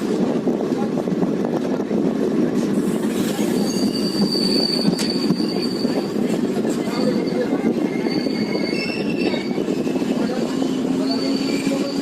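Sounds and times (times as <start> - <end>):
train rumbling on rails: 0.0 - 12.0
high wheel squeal: 3.0 - 12.0.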